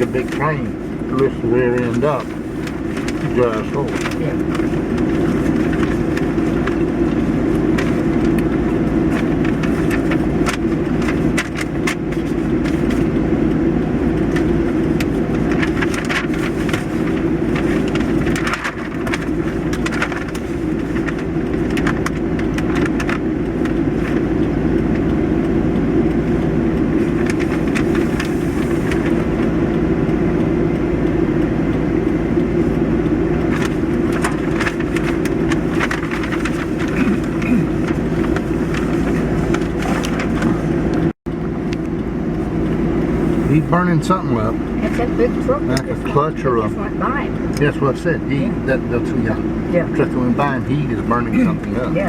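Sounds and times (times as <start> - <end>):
road vehicle rumble: 0.0 - 52.0
small clicks and rattles: 14.3 - 24.3.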